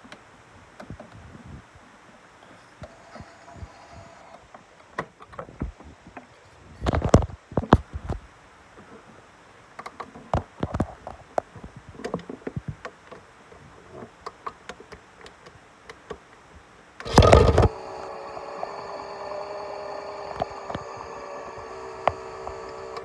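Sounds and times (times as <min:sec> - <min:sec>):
electric motor hum: 0:17.0 - 0:23.0
loud rattle: 0:17.1 - 0:23.0.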